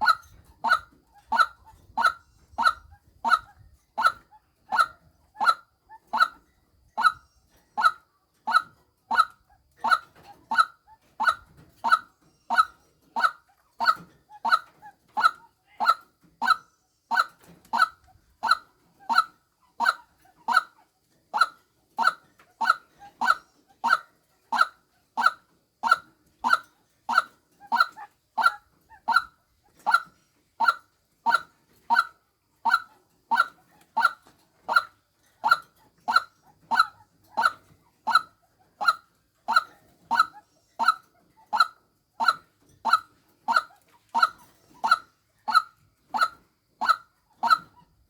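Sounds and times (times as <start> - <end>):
waterhen calling: 0.0 - 6.4, 21.4 - 47.8.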